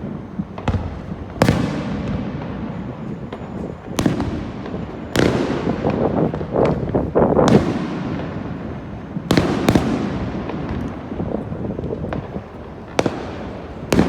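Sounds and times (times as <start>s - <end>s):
fireworks bangs: 0.0s - 14.0s
fireworks crackling: 0.0s - 14.0s.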